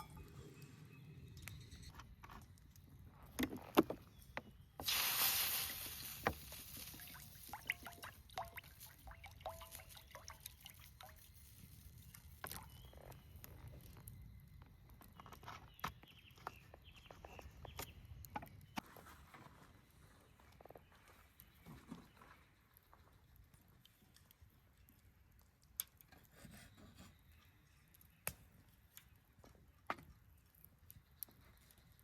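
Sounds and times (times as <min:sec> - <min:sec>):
camp cookware clinking: 0:00.0 - 0:00.5, 0:06.2 - 0:11.2
rushing hiss: 0:04.8 - 0:07.2.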